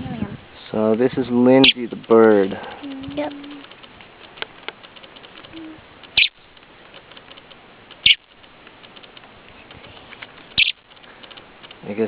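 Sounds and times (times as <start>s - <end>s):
bird giving high-pitched calls: 1.6s - 1.8s, 5.5s - 6.4s, 8.0s - 8.3s, 10.5s - 10.8s.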